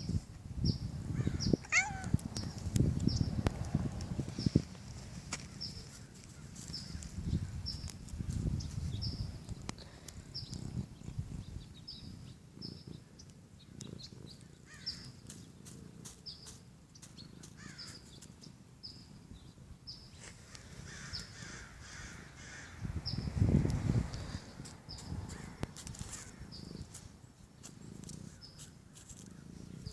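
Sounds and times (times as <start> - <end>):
harsh crow-like calls: 1.1 - 2.2, 5.4 - 7.6, 14.6 - 15.2, 17.5 - 18.0, 20.8 - 22.9, 25.3 - 26.8.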